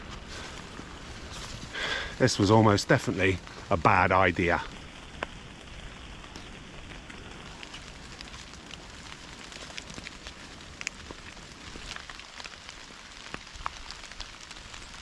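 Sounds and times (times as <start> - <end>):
rain hissing: 0.0 - 15.0
raindrops ticking: 0.0 - 15.0.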